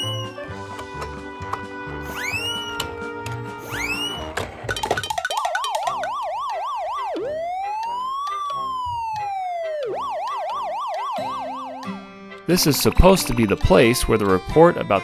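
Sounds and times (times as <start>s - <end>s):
police siren: 0.0s - 0.7s, 2.0s - 4.4s, 5.3s - 12.2s.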